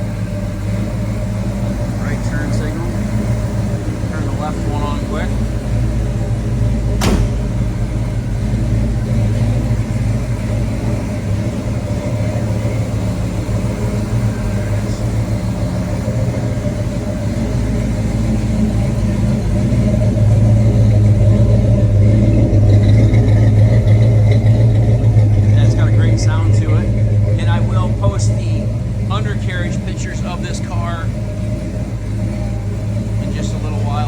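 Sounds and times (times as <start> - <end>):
car engine running: 0.0 - 34.0
sharp knock: 7.0 - 7.8.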